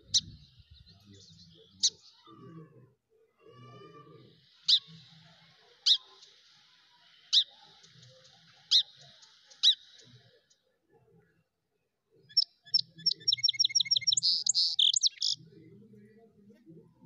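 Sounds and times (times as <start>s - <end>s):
bird chirping sharply: 12.3s - 15.4s.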